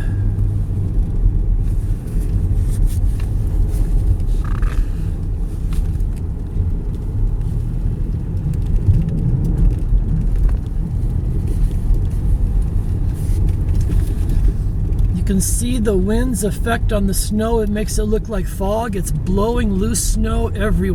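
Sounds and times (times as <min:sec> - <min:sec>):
car driving on snowy road: 0:00.0 - 0:20.9.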